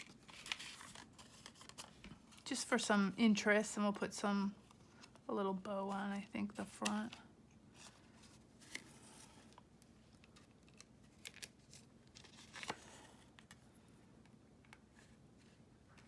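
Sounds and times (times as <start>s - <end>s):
paper rustling: 0.0s - 2.4s, 6.6s - 13.6s.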